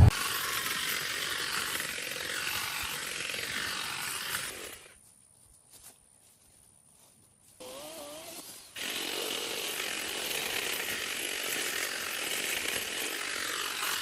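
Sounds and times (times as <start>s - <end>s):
brush cutter running: 0.0s - 5.0s, 7.6s - 14.0s.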